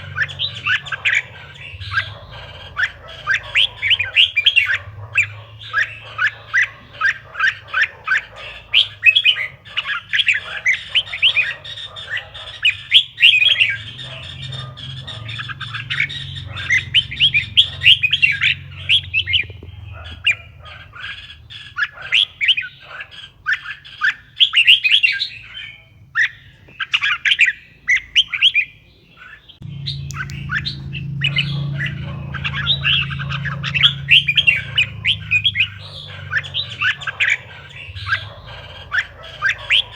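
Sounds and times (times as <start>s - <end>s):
bird song warbling: 0.0s - 39.9s
low steady hum: 29.6s - 39.5s.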